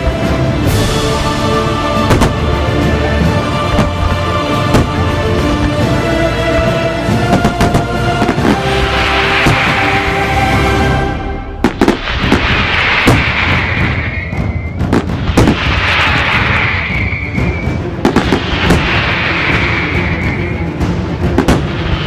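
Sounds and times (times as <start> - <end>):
music: 0.0 - 22.0
fireworks bangs: 2.0 - 2.7, 3.6 - 5.6, 7.3 - 10.6, 11.4 - 20.7, 21.3 - 22.0
fireworks whistles: 11.6 - 20.7.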